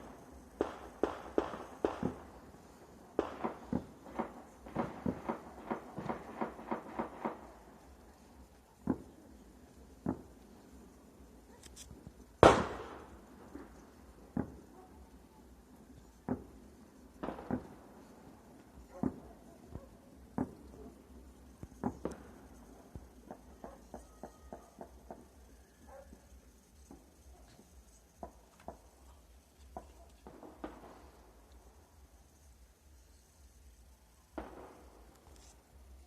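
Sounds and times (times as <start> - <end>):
gunfire: 0.0 - 2.5, 3.1 - 7.6, 12.4 - 13.2, 17.2 - 18.0, 34.4 - 35.1
distant firecracker bangs: 0.0 - 11.6, 12.3 - 31.8, 34.3 - 35.5.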